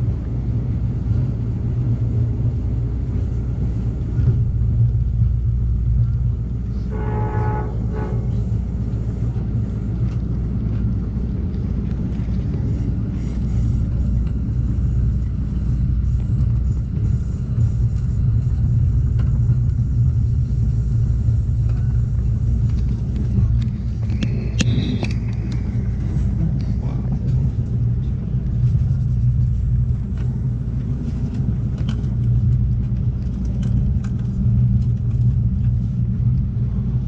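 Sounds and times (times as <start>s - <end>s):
train rumble from on board: 0.0s - 37.0s.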